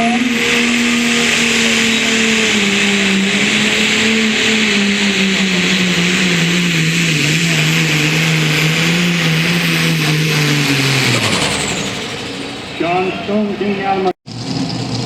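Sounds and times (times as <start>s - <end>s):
engine at full throttle: 0.0s - 15.0s.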